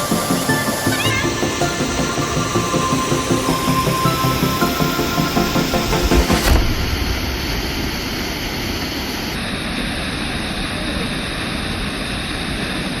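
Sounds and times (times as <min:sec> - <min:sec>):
background music: 0:00.0 - 0:07.0
waterfall rushing: 0:00.0 - 0:09.3.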